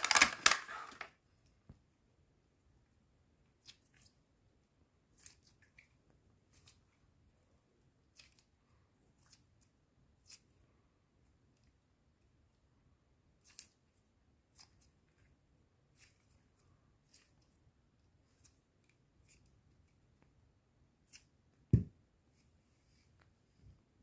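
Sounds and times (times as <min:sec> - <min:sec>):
packaging snips and crinkles: 0:00.0 - 0:01.1.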